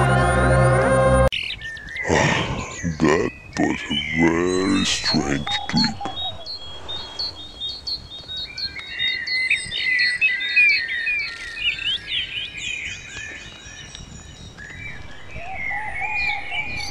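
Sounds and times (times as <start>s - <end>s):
songbirds chirping and trilling: 1.4s - 16.9s.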